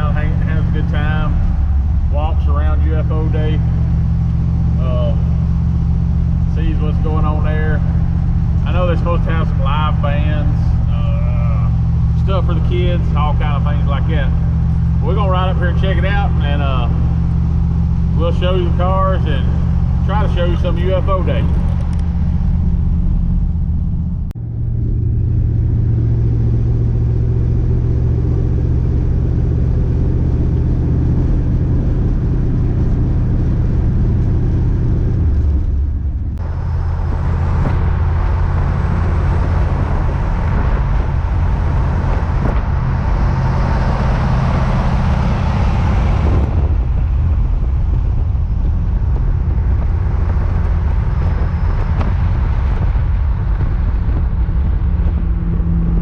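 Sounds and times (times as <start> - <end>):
road noise: 0.0 - 56.0
vehicle engine running: 0.0 - 56.0.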